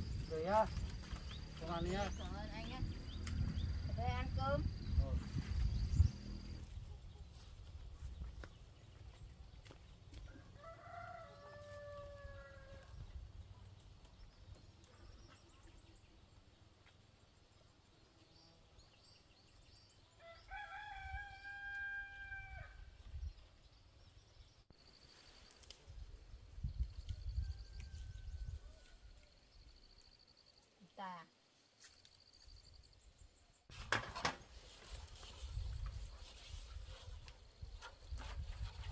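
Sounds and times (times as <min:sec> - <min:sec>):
low rumble: 0:00.0 - 0:06.8
faint rooster crowing: 0:10.2 - 0:13.1, 0:20.2 - 0:23.0, 0:27.0 - 0:29.5.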